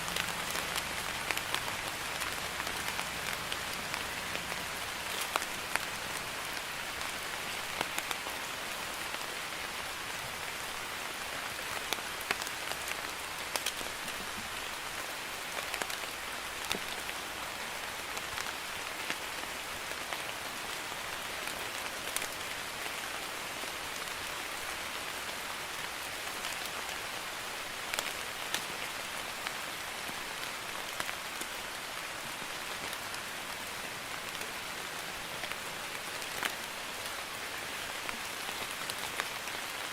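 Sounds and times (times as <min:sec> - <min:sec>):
raindrops ticking: 0:00.0 - 0:08.3, 0:11.6 - 0:14.7, 0:27.9 - 0:31.5
light rain hiss: 0:00.0 - 0:39.9.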